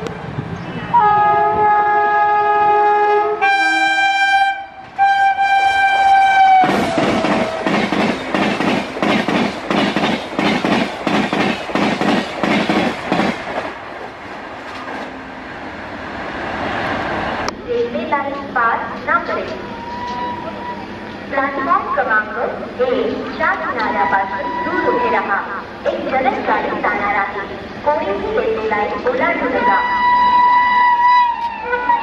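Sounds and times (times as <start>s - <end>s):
locomotive horn blasts: 0.9s - 7.7s
train wheels clattering: 6.6s - 15.1s.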